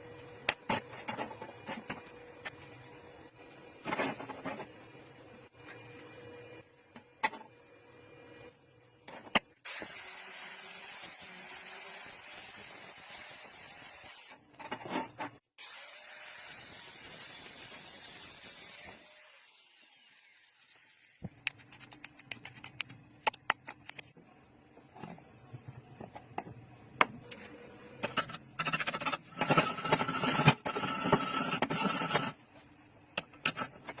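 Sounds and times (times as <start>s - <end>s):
small power tool whining: 15.6s - 21.2s.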